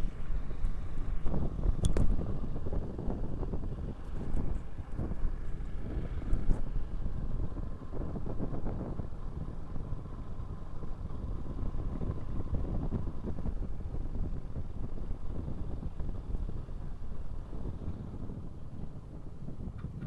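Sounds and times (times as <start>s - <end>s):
road noise: 0.0s - 20.0s
wind buffeting microphone: 0.0s - 20.0s.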